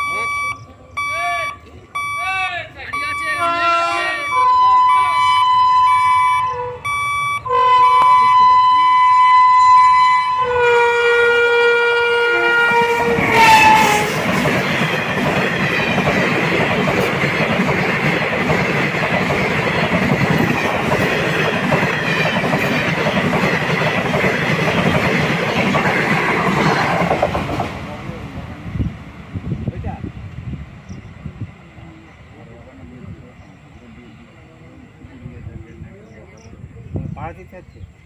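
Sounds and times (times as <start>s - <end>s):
train horn two-note blast: 3.4s - 14.2s
train wheels clickety-clack: 12.8s - 28.2s.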